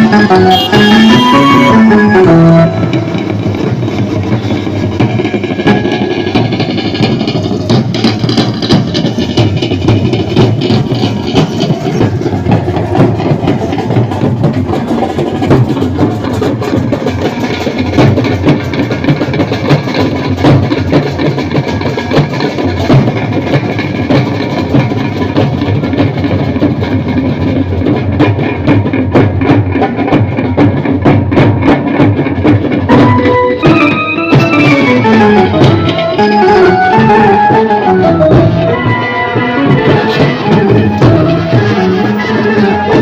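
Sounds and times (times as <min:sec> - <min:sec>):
sustained melody lines: 0:00.0 - 0:07.2, 0:32.9 - 0:43.0
fast dense drumming: 0:00.0 - 0:43.0.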